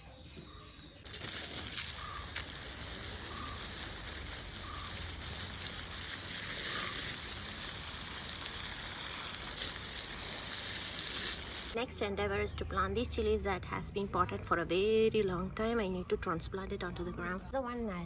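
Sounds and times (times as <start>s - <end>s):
high outdoor hiss: 1.1s - 11.8s.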